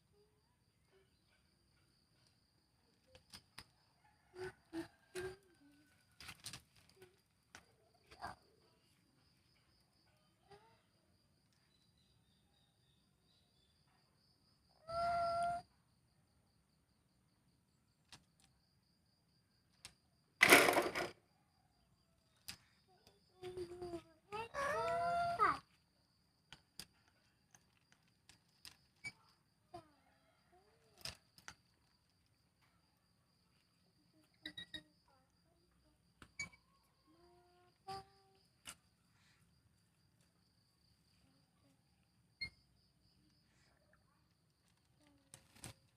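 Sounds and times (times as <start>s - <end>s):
parrot call: 14.8s - 15.6s
faint steady high tone: 33.5s - 38.4s.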